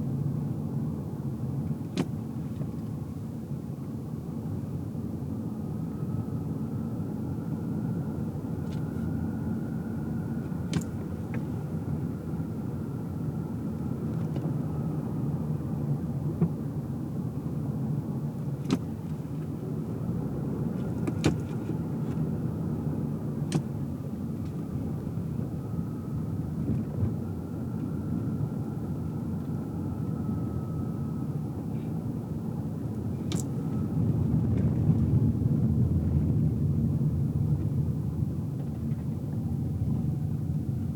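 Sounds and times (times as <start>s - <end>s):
road and tyre rumble: 0.0s - 40.9s
faint wavering whine: 2.8s - 21.0s, 21.6s - 40.9s
sharp clicks and small knocks: 33.3s - 33.5s.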